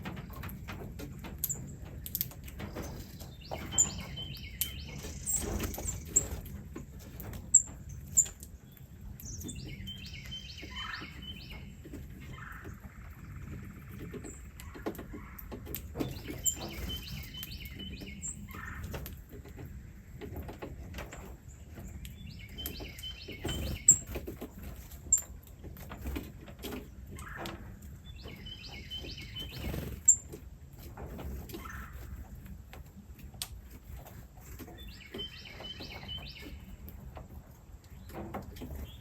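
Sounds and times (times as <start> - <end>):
small bird singing: 1.4 - 6.5, 7.5 - 18.9, 21.4 - 24.2, 28.0 - 30.4, 34.1 - 37.0.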